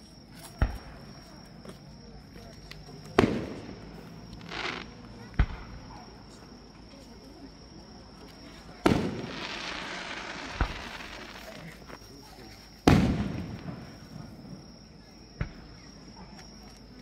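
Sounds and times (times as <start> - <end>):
firework bangs: 3.1 - 5.9, 8.6 - 11.7, 12.8 - 14.6.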